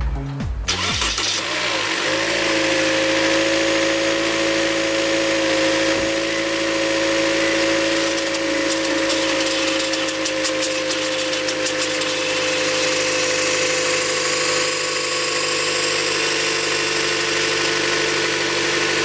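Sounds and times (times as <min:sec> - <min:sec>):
car engine idling: 0:00.0 - 0:10.9.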